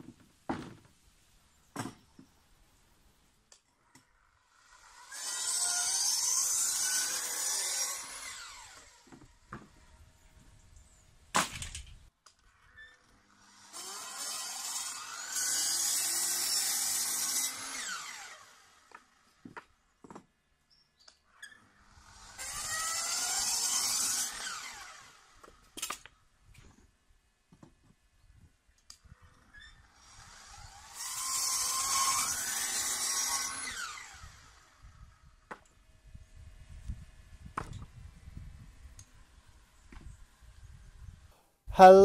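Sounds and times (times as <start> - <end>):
power tool running: 4.5 - 9.2, 13.3 - 19.3, 21.8 - 25.6, 29.9 - 34.8.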